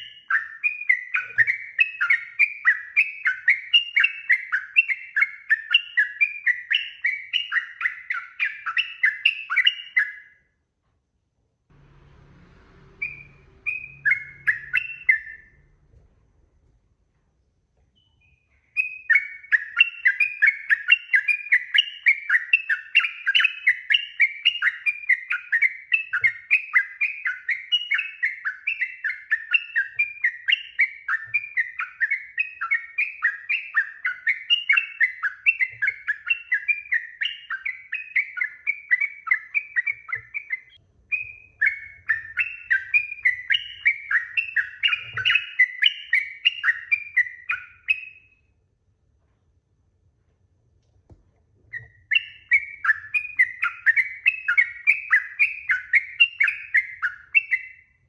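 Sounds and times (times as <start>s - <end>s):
bird singing chattering notes: 13.0s - 15.6s, 18.0s - 48.2s, 51.7s - 57.8s.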